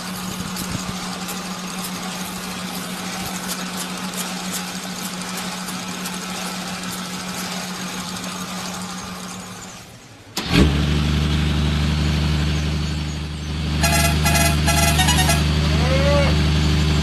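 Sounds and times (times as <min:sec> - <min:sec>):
noisy running hum: 0:00.0 - 0:10.4
engine starting and idling: 0:00.0 - 0:15.6.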